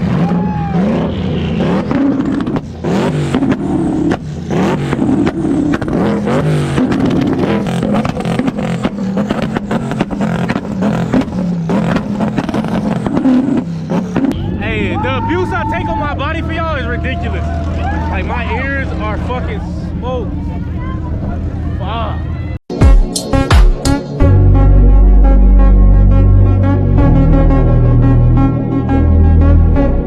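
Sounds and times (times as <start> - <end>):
vehicle engines revving: 0.0 - 22.6.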